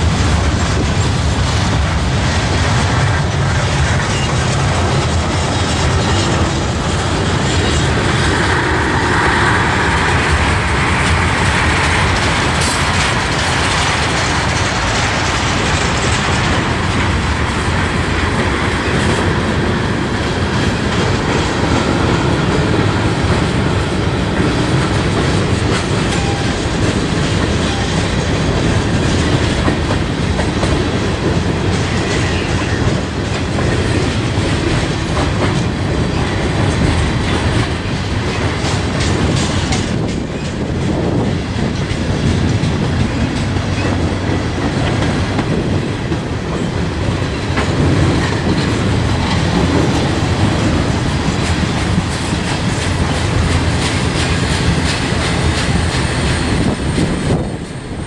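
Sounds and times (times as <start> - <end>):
freight train rumbling past: 0.0 - 58.0
wheels clicking over rail joints: 0.0 - 58.0.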